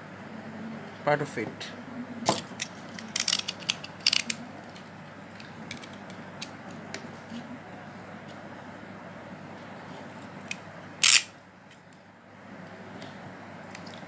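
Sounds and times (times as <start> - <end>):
plastic snap clips clicking: 3.0 - 4.4.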